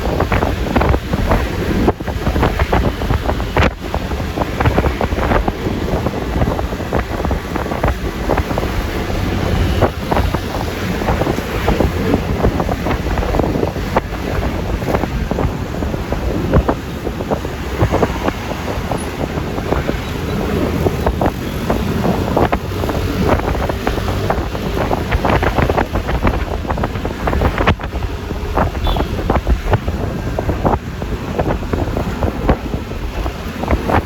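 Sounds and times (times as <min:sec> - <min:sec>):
scooter engine and road noise: 0:00.0 - 0:34.0
wind buffeting microphone: 0:00.0 - 0:34.0.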